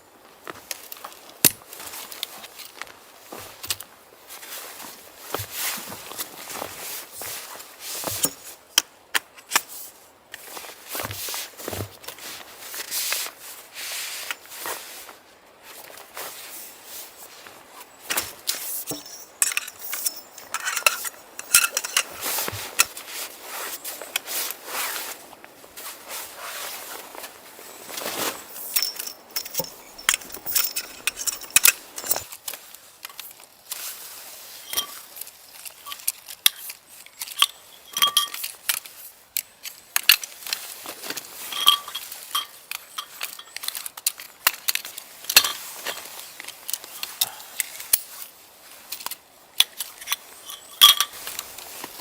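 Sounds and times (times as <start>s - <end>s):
small metal objects clinking: 18.8s - 22.3s, 28.4s - 32.3s, 41.4s - 46.1s, 49.6s - 51.6s.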